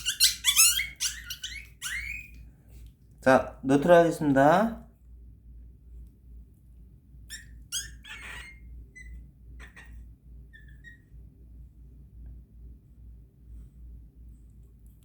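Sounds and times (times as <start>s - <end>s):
puppy whimpering squeals: 0.0s - 2.4s, 7.3s - 11.2s.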